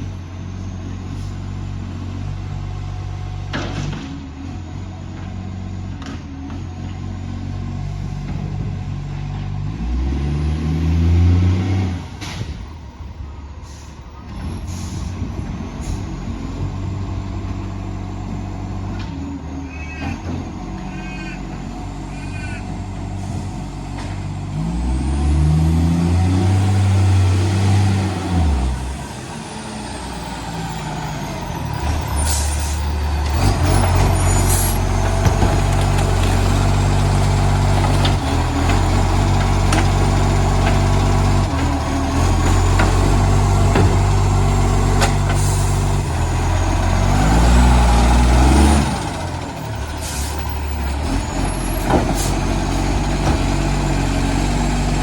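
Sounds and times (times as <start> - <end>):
diesel truck engine revving: 0.0 - 55.0.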